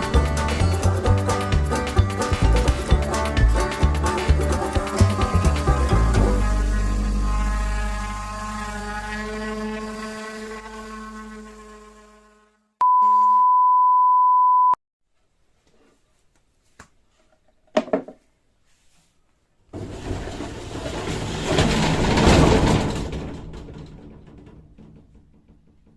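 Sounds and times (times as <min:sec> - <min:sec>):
loud steady beep tone: 0:12.8 - 0:14.8.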